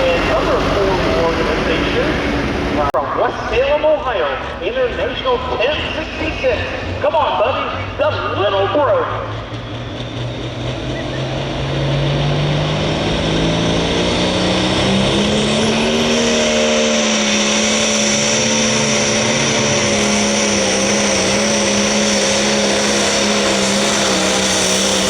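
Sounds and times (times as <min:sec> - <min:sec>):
tractor diesel engine at high revs: 0:00.0 - 0:25.0.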